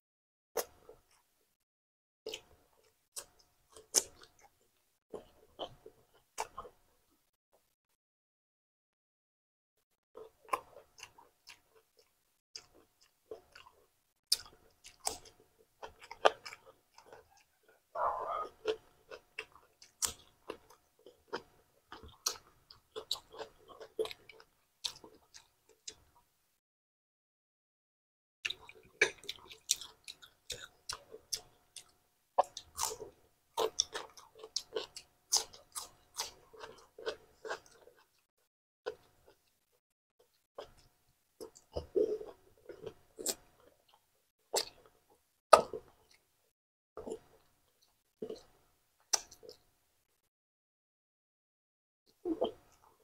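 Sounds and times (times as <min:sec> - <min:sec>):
person crunching cucumber: 0:28.5 - 0:38.2, 0:41.4 - 0:44.9, 0:49.1 - 0:49.6.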